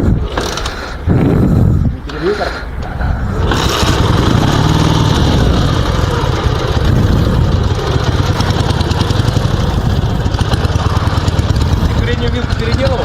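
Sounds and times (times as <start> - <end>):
motorcycle engine running: 2.7 - 13.0.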